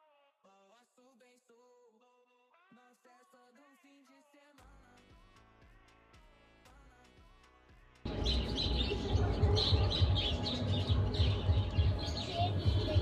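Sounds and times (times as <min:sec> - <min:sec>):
small birds chirping: 0:08.1 - 0:13.0.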